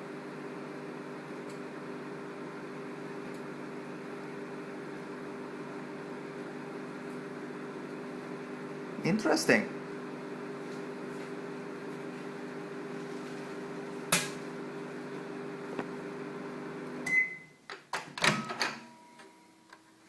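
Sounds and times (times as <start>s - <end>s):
microwave oven humming: 0.0s - 20.0s
sharp snap: 14.1s - 14.4s
microwave beep: 17.0s - 17.6s, 18.2s - 19.6s.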